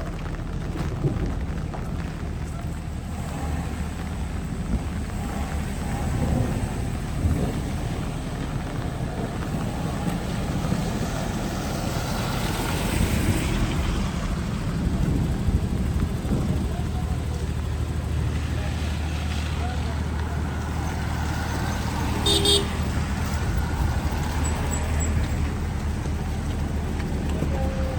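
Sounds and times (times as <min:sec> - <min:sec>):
traffic engine rumble: 0:00.0 - 0:27.9
wind buffeting microphone: 0:00.0 - 0:27.9
vehicle passing: 0:00.9 - 0:27.9.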